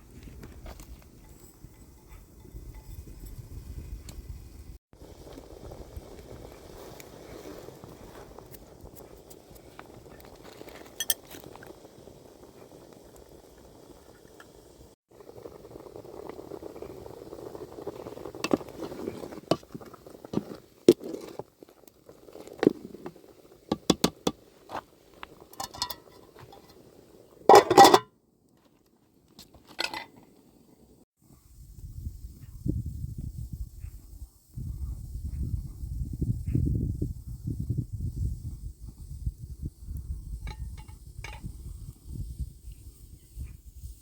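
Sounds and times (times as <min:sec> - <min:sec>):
utensils clinking against pots: 0:10.9 - 0:11.3, 0:25.5 - 0:26.8, 0:27.5 - 0:28.1
utensils clattering: 0:25.6 - 0:26.7, 0:27.5 - 0:28.0.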